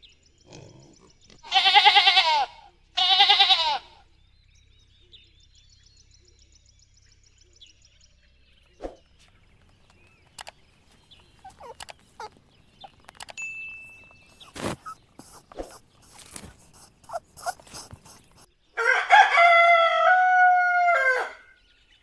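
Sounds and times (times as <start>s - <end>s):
goat bleating: 1.4s - 4.0s, 11.4s - 13.0s, 14.2s - 18.5s
faint bird chirps: 4.0s - 18.9s
soft clicks: 9.2s - 13.4s.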